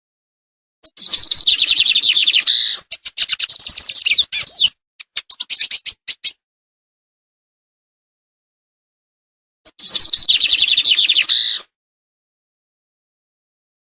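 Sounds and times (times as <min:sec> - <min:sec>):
songbird singing: 0:00.8 - 0:06.3, 0:09.7 - 0:11.6.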